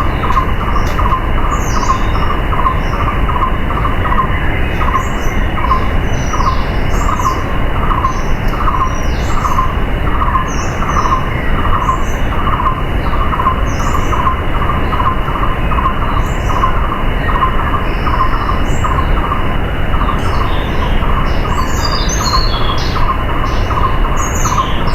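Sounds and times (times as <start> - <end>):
birds chirping: 0.0 - 24.9.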